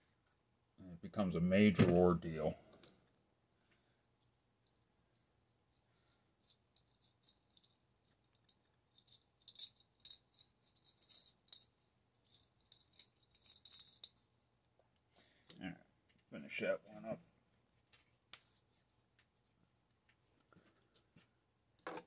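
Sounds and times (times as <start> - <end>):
small parts clicking and rattling: 4.6 - 14.2.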